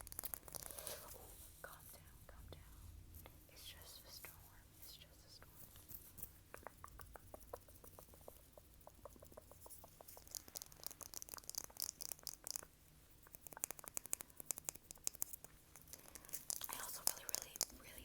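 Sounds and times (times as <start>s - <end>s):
rapid crisp clicks: 6.2s - 17.8s
small pitched taps: 6.2s - 17.9s.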